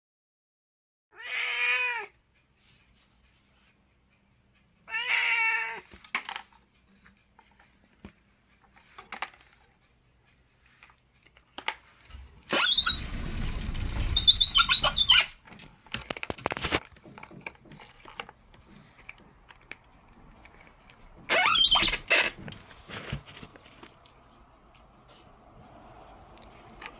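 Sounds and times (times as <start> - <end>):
cat meowing: 1.1 - 2.1, 4.9 - 5.9
small knocks and clicks: 10.7 - 24.2
low rumble: 12.1 - 15.3.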